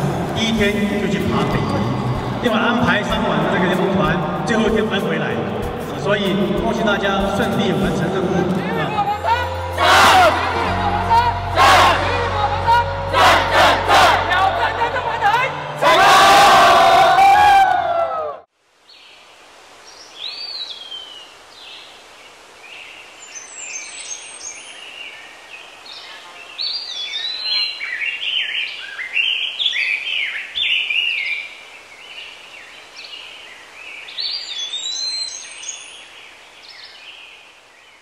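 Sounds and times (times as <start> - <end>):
faint hiss: 18.6 - 38.0
birds chirping and singing: 23.3 - 37.4.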